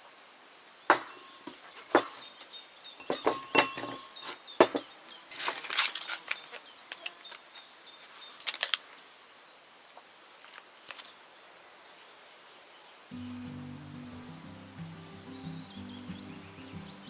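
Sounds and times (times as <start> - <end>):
cooking utensils clattering: 3.0 - 4.8.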